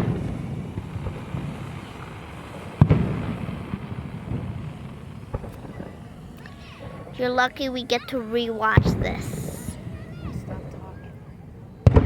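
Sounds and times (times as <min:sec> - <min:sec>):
firework boom with rumbling tail: 0:00.0 - 0:06.2
distant firework rumble: 0:00.0 - 0:12.0
firework crack: 0:00.0 - 0:12.0.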